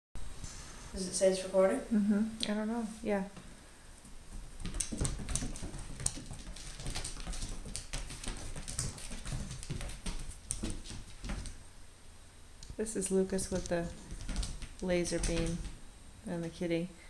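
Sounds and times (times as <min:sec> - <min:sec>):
cat paws pattering on hard floor: 0:03.4 - 0:11.6, 0:13.3 - 0:15.8.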